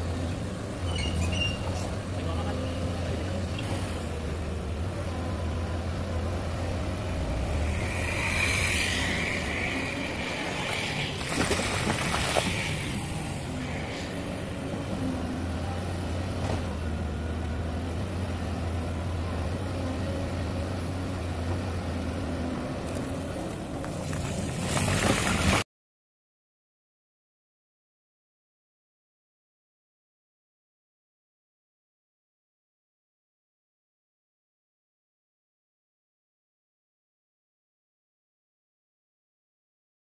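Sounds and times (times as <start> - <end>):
excavator clatter and scraping: 0.0 - 5.3, 6.0 - 18.0, 19.5 - 25.6
diesel engine running: 0.0 - 25.3.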